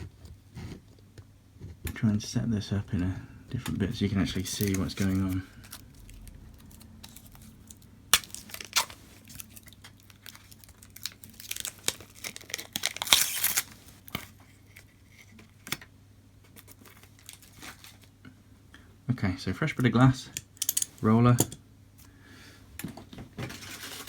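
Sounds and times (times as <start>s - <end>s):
plastic film crinkling: 4.0s - 15.4s, 16.5s - 18.2s.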